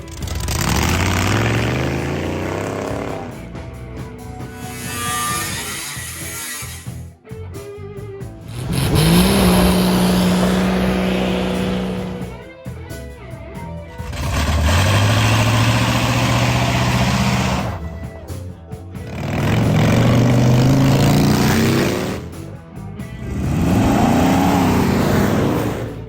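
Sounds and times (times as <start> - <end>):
car engine accelerating hard: 0.0 - 3.6, 8.4 - 12.4, 13.9 - 18.1, 19.0 - 22.5, 23.2 - 26.0
background music: 0.0 - 26.0.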